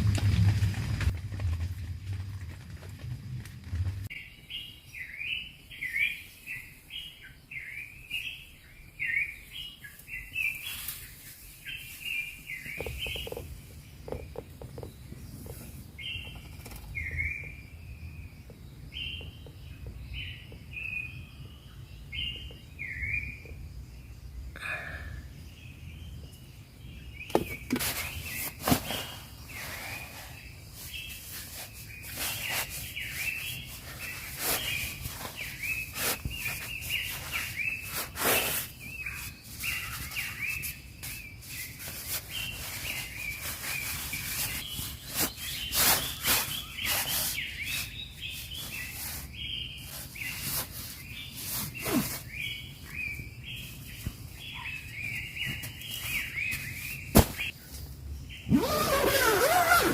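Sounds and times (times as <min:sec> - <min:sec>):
birds chirping: 0:00.0 - 0:59.9
close taps and rustles: 0:27.3 - 0:28.8.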